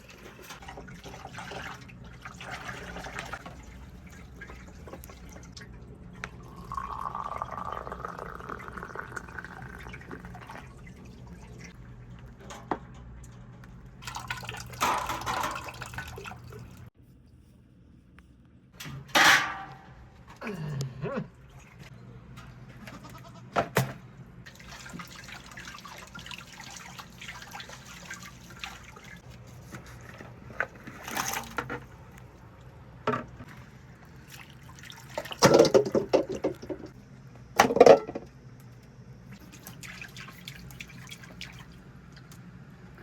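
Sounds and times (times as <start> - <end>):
liquid pouring and splashing: 0.0 - 12.4, 14.0 - 16.9, 24.5 - 32.4, 33.4 - 37.0, 39.3 - 42.4.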